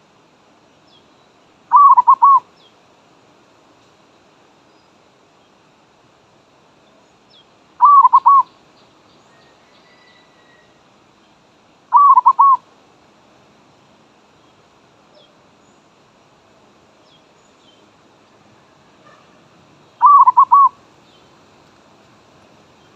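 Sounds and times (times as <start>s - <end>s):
dove cooing: 1.7s - 2.4s, 7.8s - 8.5s, 11.9s - 12.6s, 20.0s - 20.8s.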